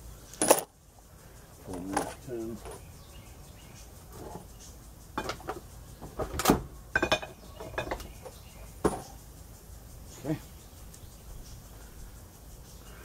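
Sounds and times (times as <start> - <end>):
bolts rattling: 0.4 - 0.7, 1.6 - 2.8, 5.2 - 9.2
hand tools knocking on metal: 7.0 - 9.2.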